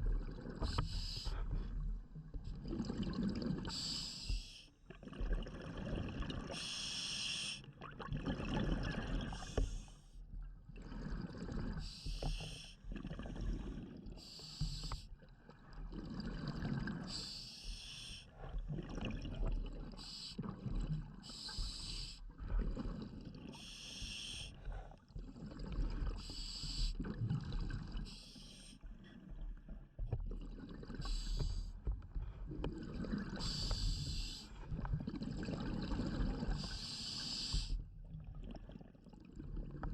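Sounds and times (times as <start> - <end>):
exhaled bubbles rumbling: 0.0 - 3.9, 4.9 - 6.6, 7.8 - 14.2, 15.1 - 17.3, 18.3 - 23.7, 24.5 - 28.2, 28.8 - 39.9
hissing regulator inhalations: 3.7 - 4.7, 6.5 - 7.7, 11.8 - 12.8, 14.2 - 15.1, 17.0 - 18.4, 21.2 - 22.2, 23.5 - 24.8, 26.2 - 27.1, 28.0 - 28.8, 31.0 - 31.8, 33.2 - 34.6, 36.4 - 37.8.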